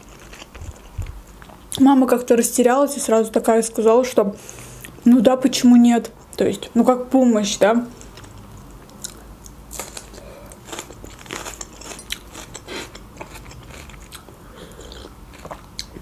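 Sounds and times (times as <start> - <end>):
chewing with crisp crunches: 0.0 - 1.8, 8.0 - 16.0.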